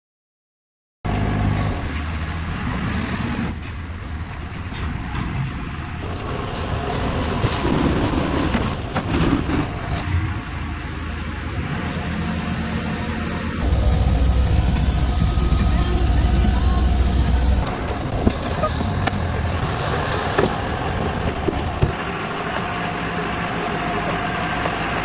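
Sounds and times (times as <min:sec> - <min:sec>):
diesel engine running: 0:01.1 - 0:25.0
knocks and clatter: 0:03.6 - 0:10.3, 0:13.6 - 0:23.0.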